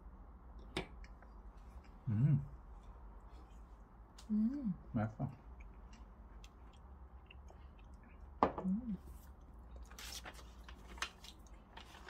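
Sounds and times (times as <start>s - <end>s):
person humming: 2.1s - 2.5s, 4.3s - 4.8s
person chewing cookie: 5.3s - 10.0s.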